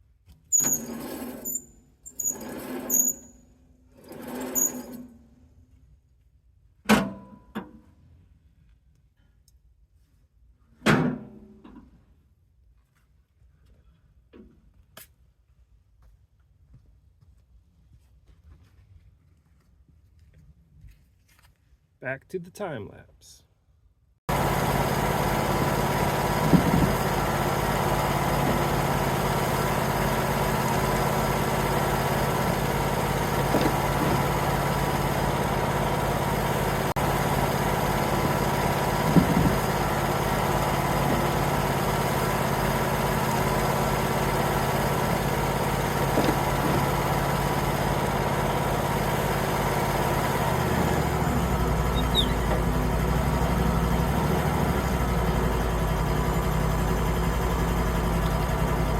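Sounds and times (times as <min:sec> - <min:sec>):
sawmill engine running: 0:02.1 - 0:03.1, 0:04.0 - 0:05.0, 0:24.3 - 0:58.9.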